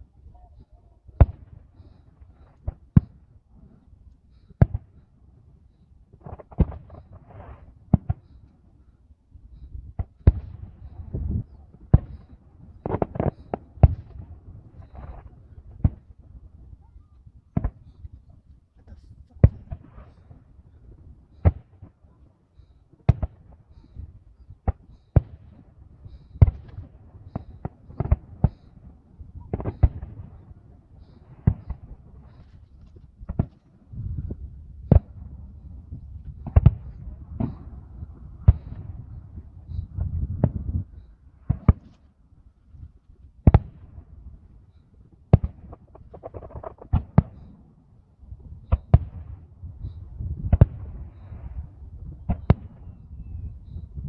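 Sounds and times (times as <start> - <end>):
fireworks banging: 45.4 - 47.6.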